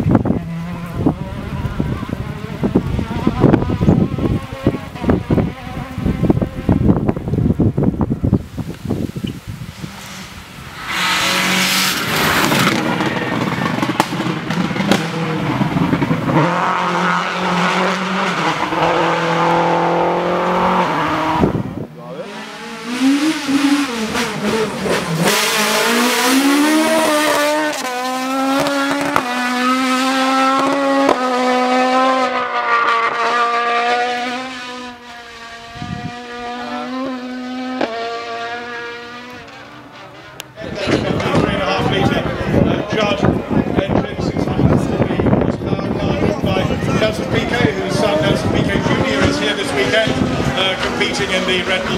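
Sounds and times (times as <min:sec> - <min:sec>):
race car engines revving: 0:00.0 - 0:51.9.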